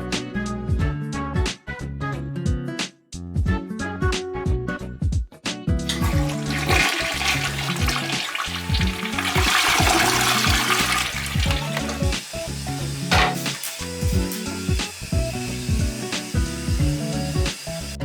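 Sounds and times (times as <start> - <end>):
background music: 0.0 - 18.0
toilet flushing: 5.9 - 18.0.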